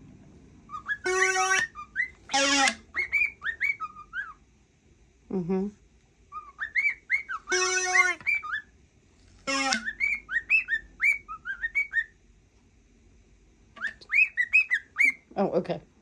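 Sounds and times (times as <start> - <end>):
cockatiel whistling: 0.7 - 4.4, 6.3 - 8.7, 9.5 - 12.2, 13.8 - 15.2.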